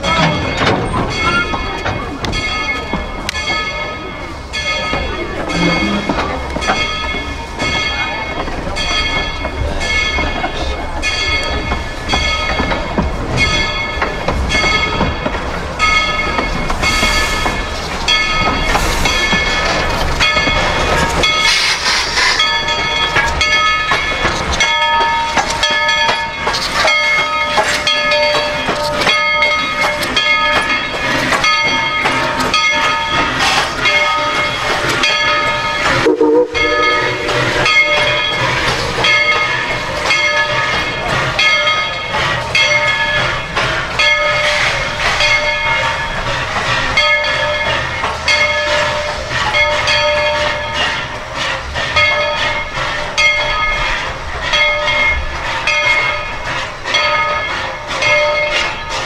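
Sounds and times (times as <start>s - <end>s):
train wheels clacking over rail joints: 0.0s - 36.1s, 37.1s - 59.0s
metallic ringing squeal: 36.1s - 38.6s.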